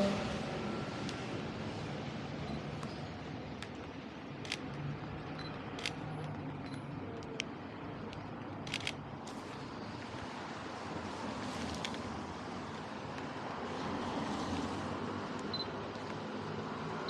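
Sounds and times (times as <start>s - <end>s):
city street noise: 0.0s - 17.0s
camera shutter clicking: 8.6s - 9.0s.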